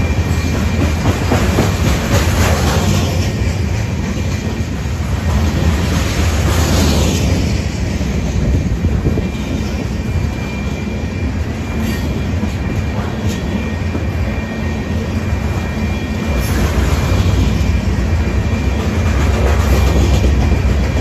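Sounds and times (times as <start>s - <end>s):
clanks from wheels and couplings: 0.0s - 7.4s
rumble of train wheels on rail: 0.0s - 21.0s
faint high wheel squeal: 9.2s - 19.2s.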